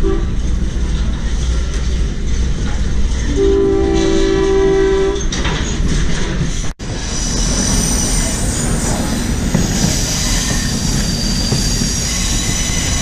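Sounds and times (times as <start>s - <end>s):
moving train rumble: 0.0s - 13.0s
locomotive air horn chord: 3.3s - 5.3s.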